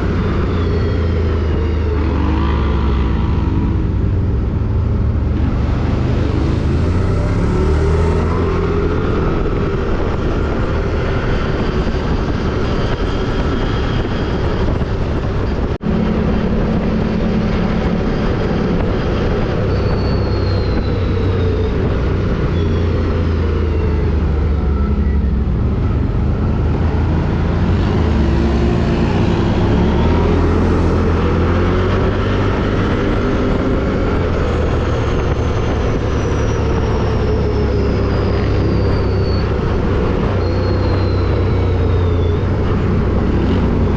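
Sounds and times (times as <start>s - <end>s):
quad bike engine revving: 0.0s - 11.8s.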